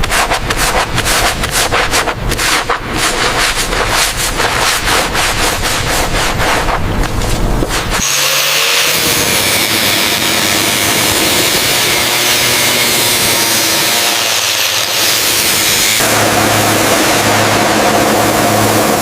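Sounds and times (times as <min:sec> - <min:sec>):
rapid rubbing strokes: 0:00.0 - 0:16.1
power tool running: 0:08.0 - 0:19.0.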